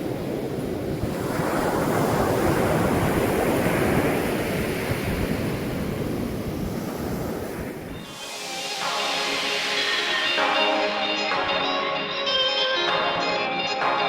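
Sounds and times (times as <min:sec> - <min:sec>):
wind buffeting microphone: 0:00.0 - 0:08.1
ocean surf washing in: 0:00.0 - 0:12.0.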